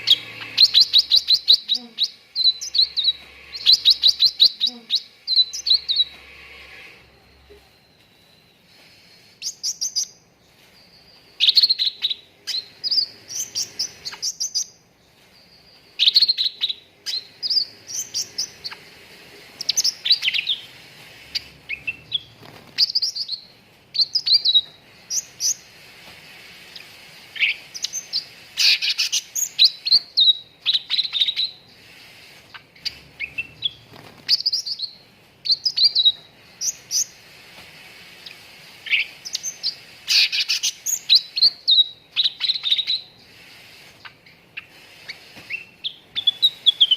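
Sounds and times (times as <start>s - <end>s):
songbird chirping rapidly: 0.0s - 25.8s.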